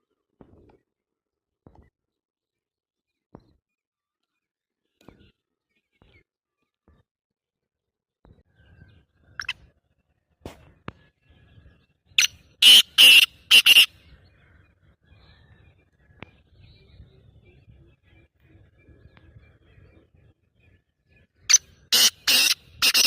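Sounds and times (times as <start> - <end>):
bird harsh rasping call: 12.2 - 13.9, 21.5 - 23.0.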